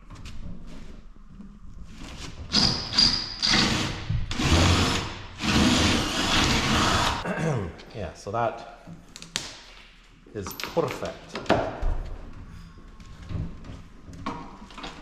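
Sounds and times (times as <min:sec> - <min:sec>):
power drill drilling: 0:02.5 - 0:07.2.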